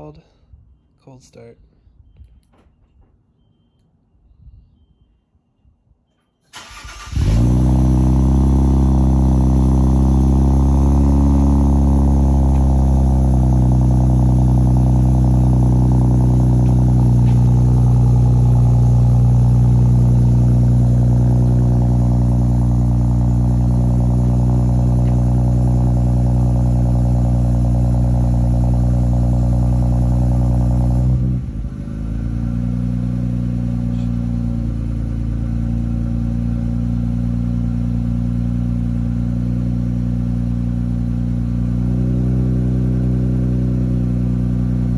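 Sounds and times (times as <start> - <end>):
car engine cranking: 6.5 - 31.0
car engine high idle: 6.6 - 41.9.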